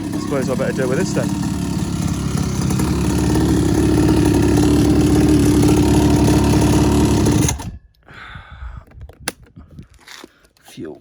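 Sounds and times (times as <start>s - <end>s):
quad bike engine idling: 0.0s - 7.7s.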